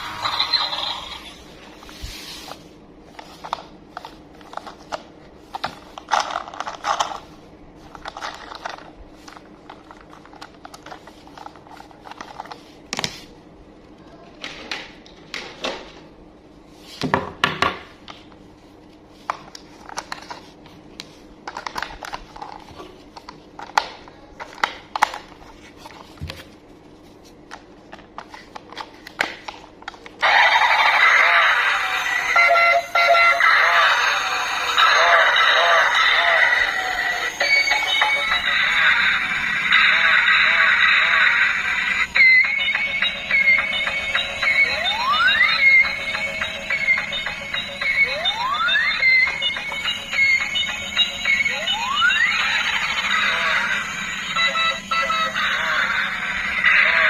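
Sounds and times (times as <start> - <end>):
packaging rustling and toy handling: 1.7 - 13.3, 18.6 - 30.2.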